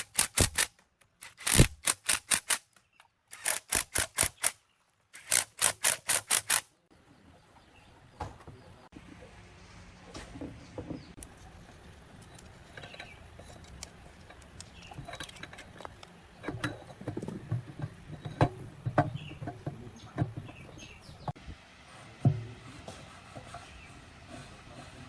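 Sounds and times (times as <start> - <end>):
irregular knocks and clicks: 14.3 - 21.4.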